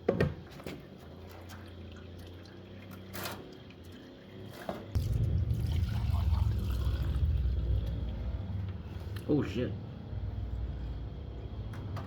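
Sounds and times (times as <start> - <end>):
gasoline trickling and pouring: 0.9 - 9.0.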